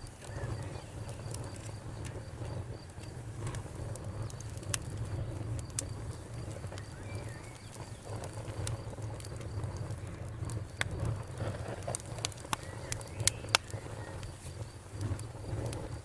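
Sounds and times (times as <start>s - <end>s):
cricket chirping: 0.0s - 16.0s
wood fire crackling and popping: 0.0s - 16.0s
bird call: 6.7s - 8.1s.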